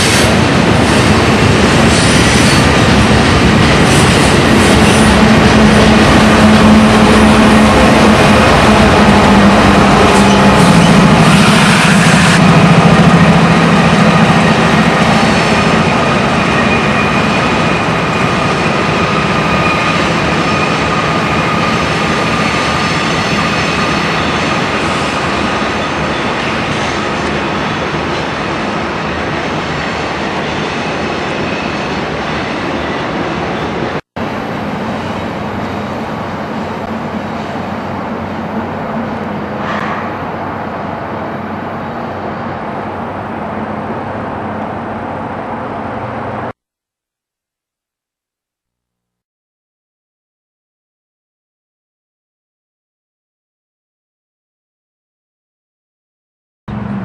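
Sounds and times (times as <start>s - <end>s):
rumble of rolling train cars: 0.0s - 46.6s, 56.7s - 57.0s
locomotive engine drone: 2.6s - 23.2s, 23.8s - 46.6s, 56.7s - 57.0s.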